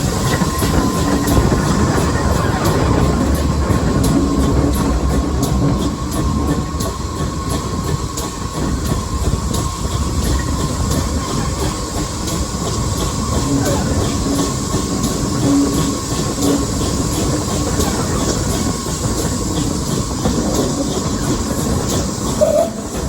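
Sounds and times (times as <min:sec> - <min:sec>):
train wheels rumbling: 0:00.0 - 0:23.0
wheels clicking over rail joints: 0:00.0 - 0:23.0.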